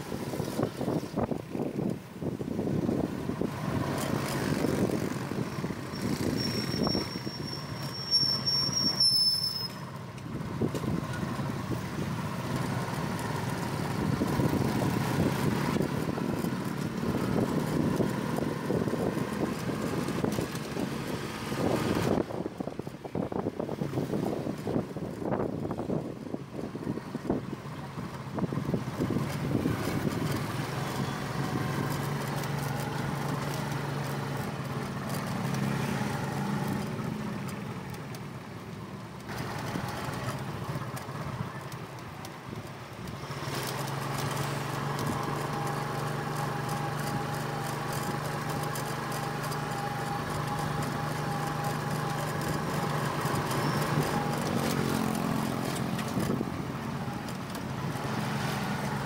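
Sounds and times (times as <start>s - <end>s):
road and wind noise: 0.0s - 59.0s.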